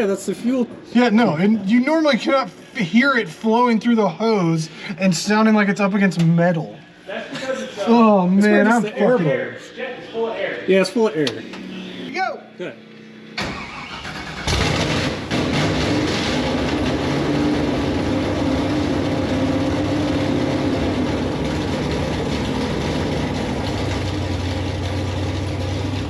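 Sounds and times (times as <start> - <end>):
race car engine cranking: 13.4 - 26.0
race car engine fast idle: 13.4 - 26.0.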